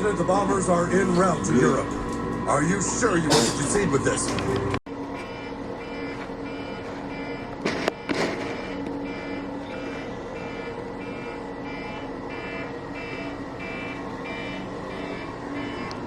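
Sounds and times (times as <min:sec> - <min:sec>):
electronic alarm beeping: 0:05.1 - 0:16.0.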